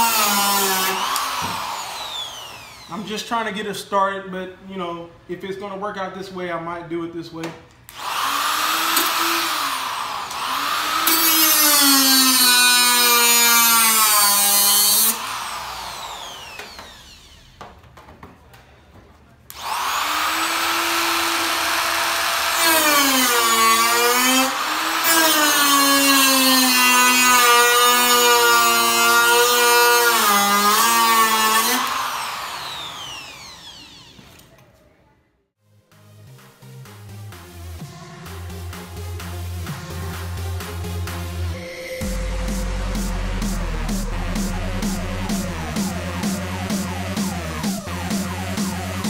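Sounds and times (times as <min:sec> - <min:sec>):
power tool cutting sheet metal: 0:00.0 - 0:03.1, 0:07.9 - 0:17.6, 0:19.5 - 0:34.5, 0:39.7 - 0:49.0.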